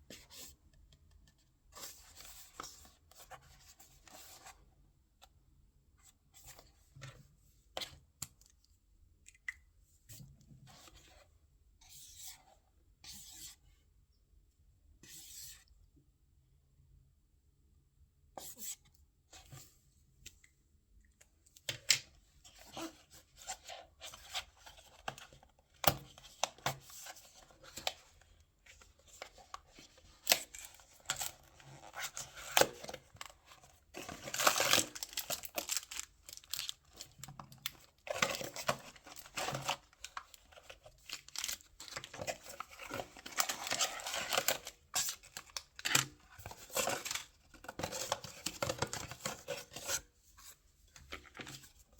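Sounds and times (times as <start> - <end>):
wrapping rustling: 29.2 - 49.8
packaging tearing and crinkling: 34.0 - 37.0, 37.6 - 46.1.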